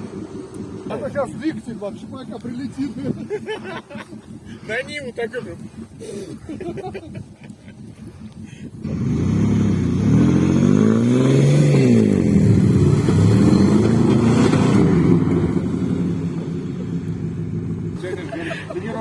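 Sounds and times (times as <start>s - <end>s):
car engine revving hard: 8.8s - 18.0s.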